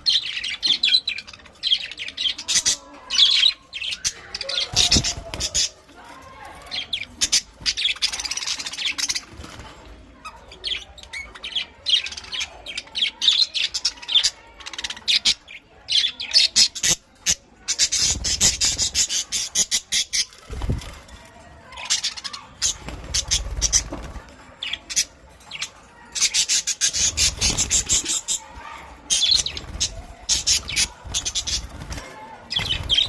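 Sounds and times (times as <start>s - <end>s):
budgerigars chirping and chattering: 0.0s - 33.0s.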